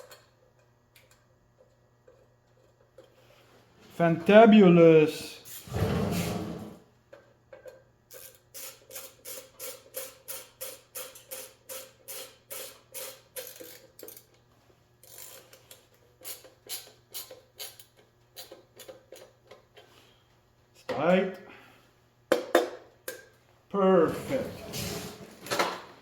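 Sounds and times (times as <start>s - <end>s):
ratcheting tool clicking: 7.6s - 14.3s, 15.0s - 19.6s.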